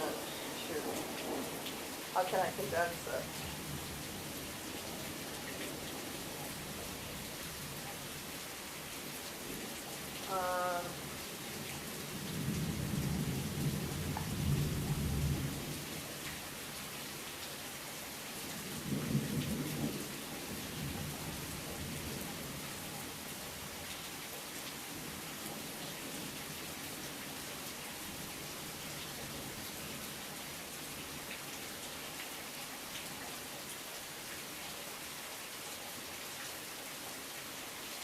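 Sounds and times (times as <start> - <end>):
thunder rumbling: 0.0 - 4.0
heavy rain falling: 0.0 - 38.0.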